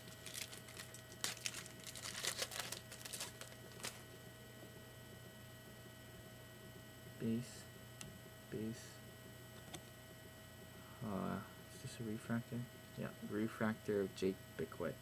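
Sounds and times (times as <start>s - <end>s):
cards and wrappers rustling: 0.0s - 4.0s
steady electrical hum: 0.0s - 15.0s.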